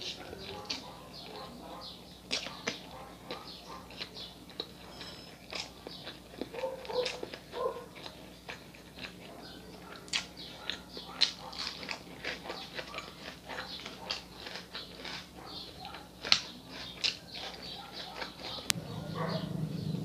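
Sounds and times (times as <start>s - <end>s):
moist chewing clicks: 0.0s - 20.0s
lip smacks: 2.2s - 4.8s, 5.5s - 18.9s.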